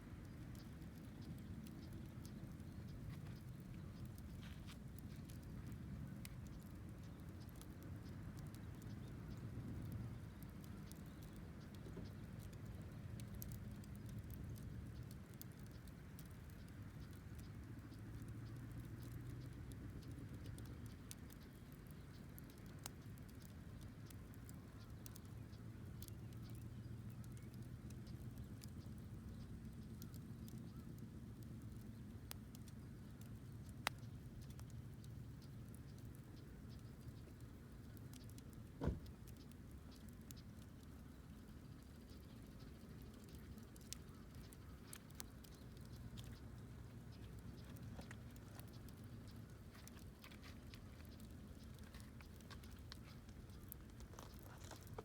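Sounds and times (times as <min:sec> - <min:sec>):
wood fire crackling: 0:00.0 - 0:55.0
dull thump: 0:38.8 - 0:39.1.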